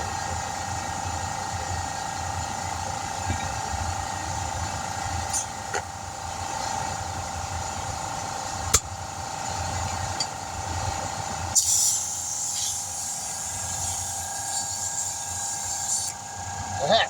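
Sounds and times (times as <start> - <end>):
steady machine hum: 0.0 - 17.0
compressed air hissing: 11.6 - 16.2.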